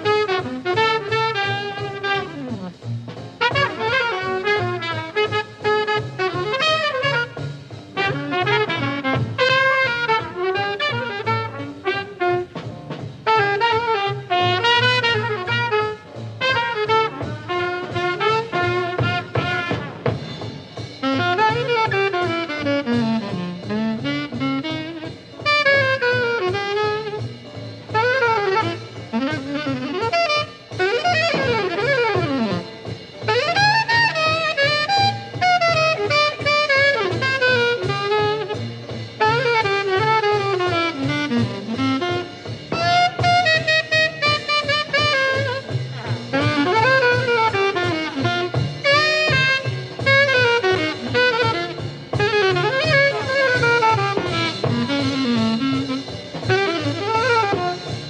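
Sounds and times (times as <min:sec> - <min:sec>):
bass and drums: 0:00.0 - 0:58.0
saxophone solo: 0:00.0 - 0:58.0.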